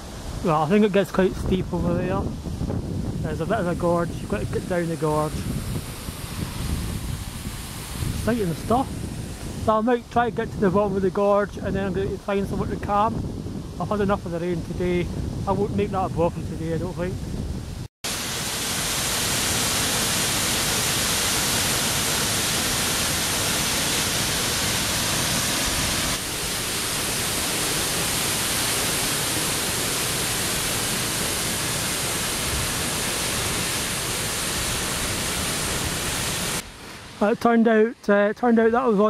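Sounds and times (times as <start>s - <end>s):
waterfall roaring: 3.2s - 10.1s, 18.1s - 37.4s.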